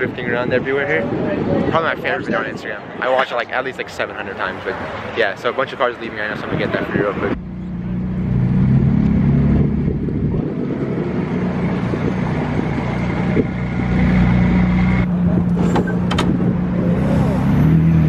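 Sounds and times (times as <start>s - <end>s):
car engines low rumble: 0.0s - 18.0s.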